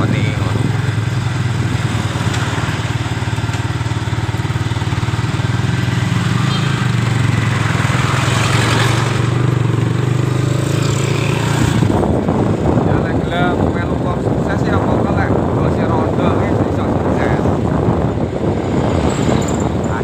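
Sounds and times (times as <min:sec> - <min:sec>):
small motorcycle engine droning: 0:00.0 - 0:12.9.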